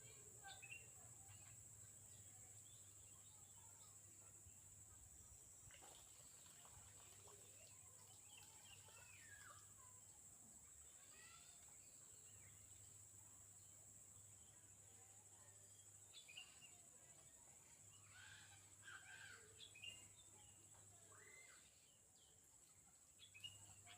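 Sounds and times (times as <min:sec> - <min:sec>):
wild bird chirps and whistles: 0:21.1 - 0:21.9.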